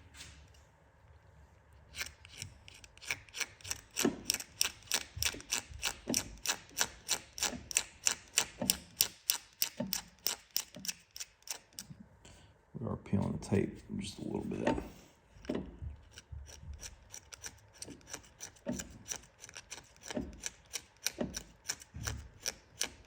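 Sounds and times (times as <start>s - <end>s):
razor blade scraping epoxy: 1.9s - 11.9s, 16.1s - 23.0s.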